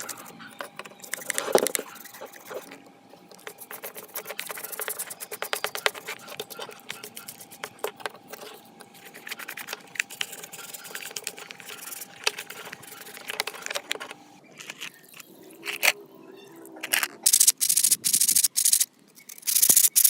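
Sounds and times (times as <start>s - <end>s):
small hard objects clicking: 16.8s - 20.0s.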